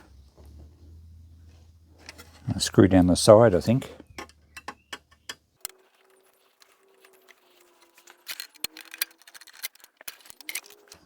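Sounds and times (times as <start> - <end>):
faint steady hum: 0.0 - 5.7.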